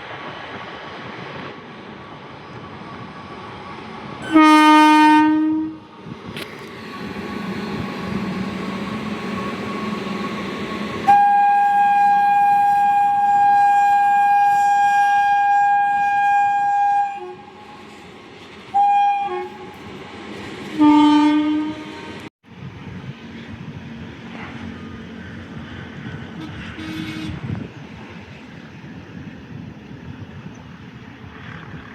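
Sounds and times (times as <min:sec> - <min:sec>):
passing train rumble: 0:00.0 - 0:31.9
high train horn: 0:04.2 - 0:05.9, 0:09.0 - 0:18.0, 0:18.7 - 0:19.9, 0:20.8 - 0:22.3, 0:26.3 - 0:27.7
low train horn: 0:04.2 - 0:05.9, 0:07.7 - 0:18.0, 0:18.7 - 0:19.9, 0:20.8 - 0:22.3, 0:26.3 - 0:27.7.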